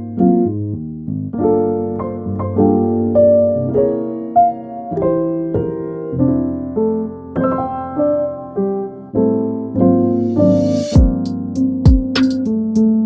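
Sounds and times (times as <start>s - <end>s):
solo piano playing: 0.0s - 13.0s.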